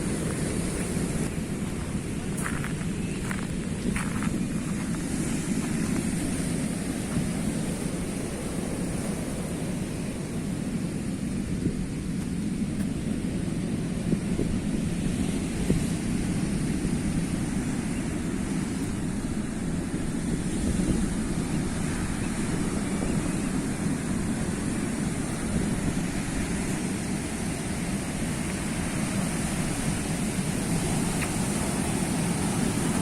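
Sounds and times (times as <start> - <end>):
surf washing: 0.0 - 33.0.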